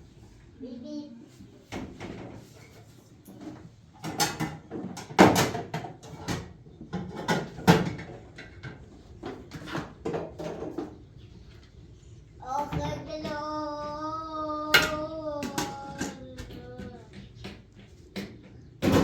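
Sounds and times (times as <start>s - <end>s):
hard objects knocking and clattering: 3.3s - 11.1s, 14.7s - 19.0s.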